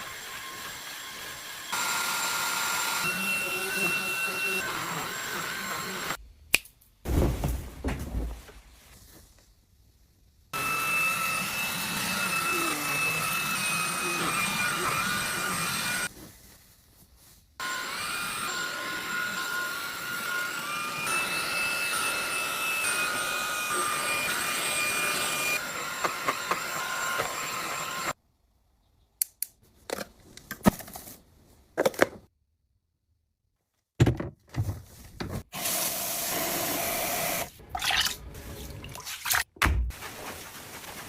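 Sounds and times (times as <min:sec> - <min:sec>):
vacuum cleaner whining: 0:00.0 - 0:06.2, 0:10.6 - 0:16.1, 0:17.6 - 0:28.2, 0:35.5 - 0:37.5.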